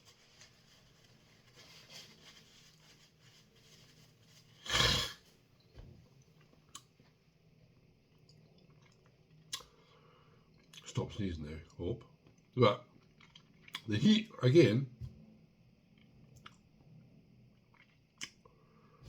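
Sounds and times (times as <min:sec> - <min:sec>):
chewing and mouth clicks: 0:08.1 - 0:09.8, 0:12.2 - 0:13.9, 0:17.6 - 0:18.4.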